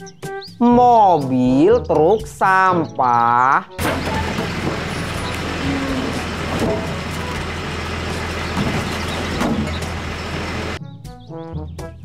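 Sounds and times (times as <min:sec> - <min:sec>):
garbage truck engine running: 0:03.8 - 0:10.8
street noise: 0:03.8 - 0:10.8.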